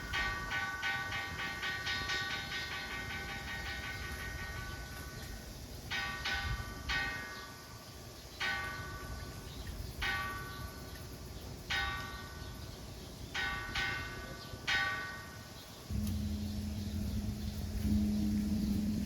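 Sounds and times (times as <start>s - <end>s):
low background rumble: 15.9s - 19.0s.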